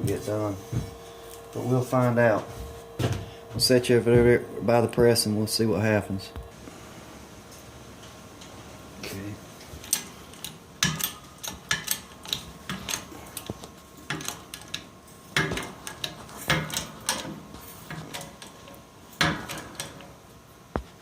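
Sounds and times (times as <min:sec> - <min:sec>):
steel parts clanking and rattling: 0:09.8 - 0:20.2.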